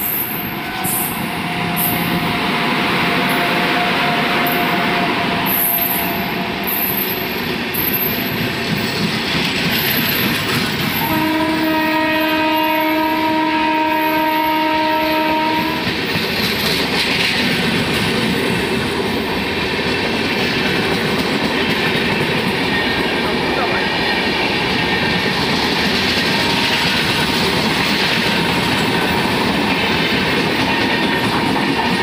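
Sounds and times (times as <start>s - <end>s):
train passing at speed: 0.0s - 32.0s
single-note train horn: 0.3s - 6.7s, 11.0s - 15.9s.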